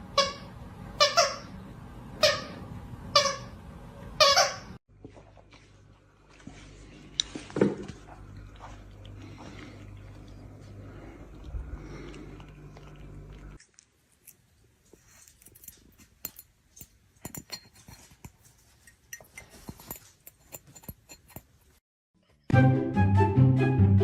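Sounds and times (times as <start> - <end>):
low hum: 7.8 - 13.6
music: 22.4 - 24.0.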